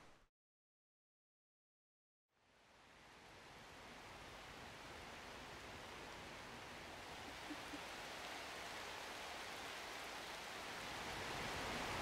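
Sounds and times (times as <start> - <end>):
rain falling on leaves: 2.5 - 12.0.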